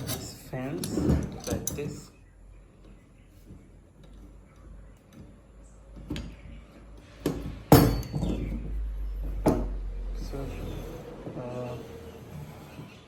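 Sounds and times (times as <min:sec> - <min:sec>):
metal parts clinking and knocking: 0:00.0 - 0:02.1, 0:07.2 - 0:09.7.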